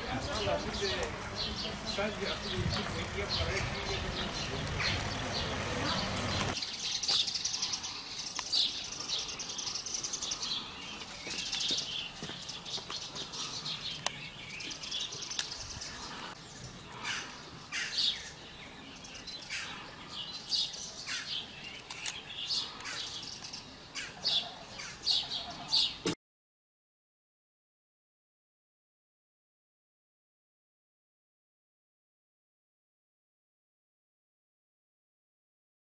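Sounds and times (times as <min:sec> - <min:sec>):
small birds chirping: 0:00.0 - 0:26.2.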